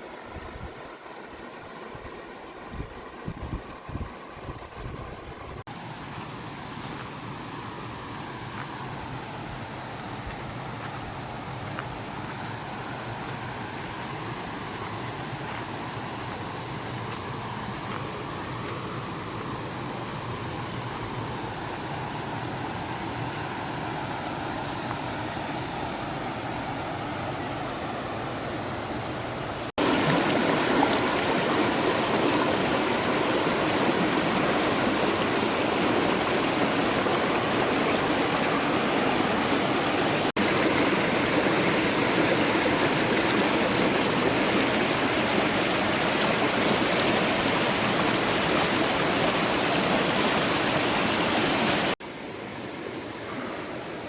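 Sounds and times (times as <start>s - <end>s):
creek water rushing: 0.0s - 54.0s.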